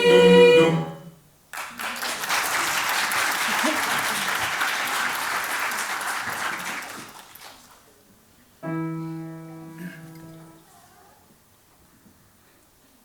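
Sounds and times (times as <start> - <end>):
audience applause: 1.5 - 7.8.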